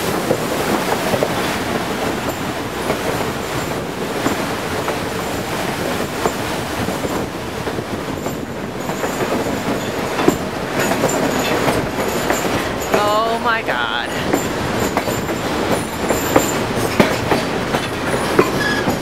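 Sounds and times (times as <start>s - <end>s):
train wheels rumbling on rails: 0.0s - 19.0s
high wheel squeal: 18.2s - 19.0s.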